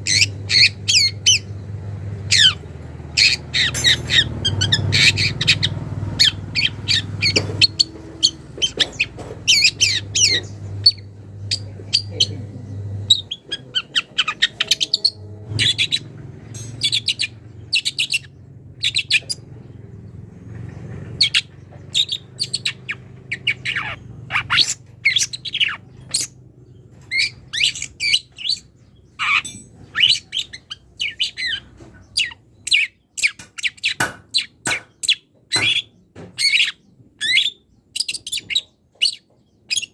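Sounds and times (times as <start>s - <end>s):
shrike chirping and squawking: 0.0s - 20.2s, 21.0s - 39.9s.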